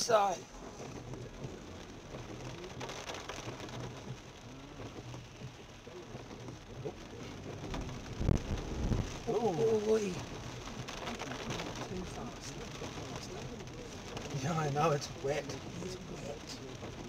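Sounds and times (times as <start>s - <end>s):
heavy rain on car roof: 0.0s - 17.0s
low rumble: 6.0s - 9.6s.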